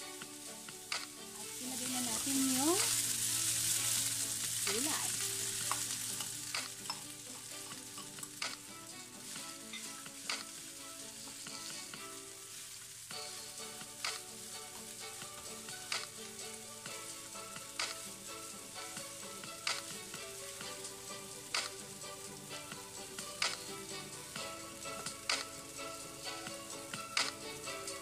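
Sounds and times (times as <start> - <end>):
rice sizzling in a wok: 0.0 - 28.0
spatula scraping the pan: 5.2 - 12.8.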